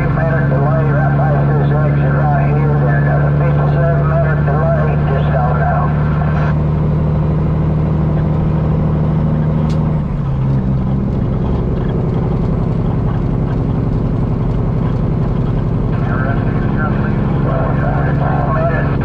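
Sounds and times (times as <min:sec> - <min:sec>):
truck diesel engine running: 0:00.0 - 0:19.0
sharp click: 0:09.6 - 0:09.9.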